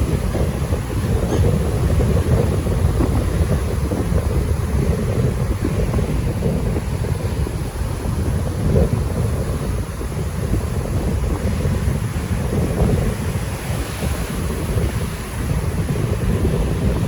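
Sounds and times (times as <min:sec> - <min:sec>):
sea surf rushing: 0:00.0 - 0:17.0
wind buffeting microphone: 0:00.0 - 0:17.0.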